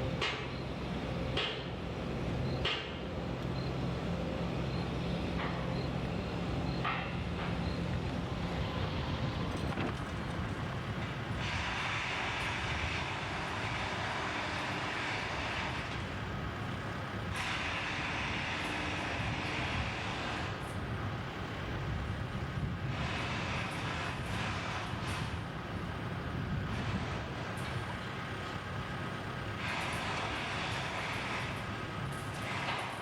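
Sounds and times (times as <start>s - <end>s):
low mechanical rumble: 0.0s - 17.4s.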